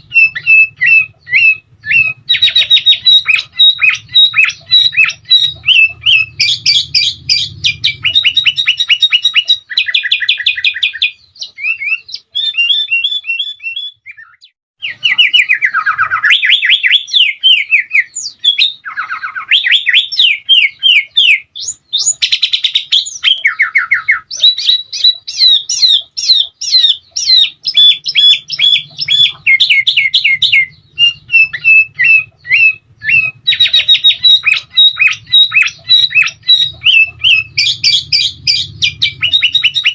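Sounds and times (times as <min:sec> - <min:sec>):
bird chirping and trilling: 0:00.0 - 0:39.9
faint low hum: 0:27.7 - 0:39.9.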